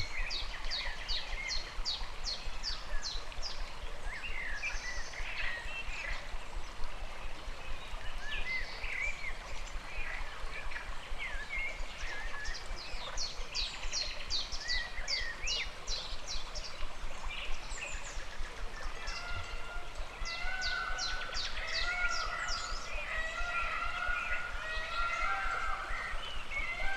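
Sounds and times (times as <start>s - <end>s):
stream running water: 0.0s - 26.9s
birds chirping and whistling: 20.2s - 26.9s.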